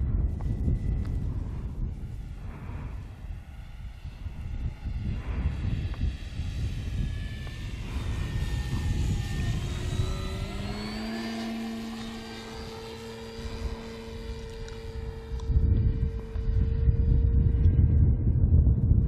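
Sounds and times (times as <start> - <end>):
wind buffeting microphone: 0.0 - 19.0
model plane motor whining: 0.1 - 18.2.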